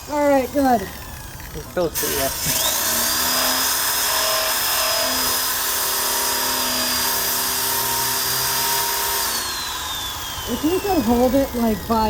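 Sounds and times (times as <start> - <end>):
power drill wire brush scrubbing metal: 0.0 - 12.0.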